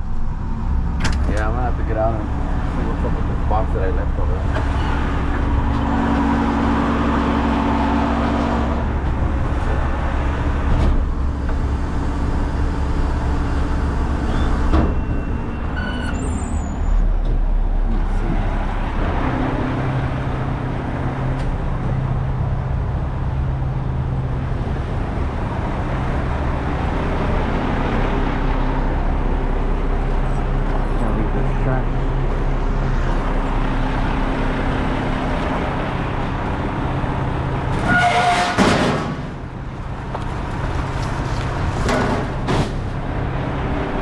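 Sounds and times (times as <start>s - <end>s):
garbage truck engine running: 0.0s - 44.0s.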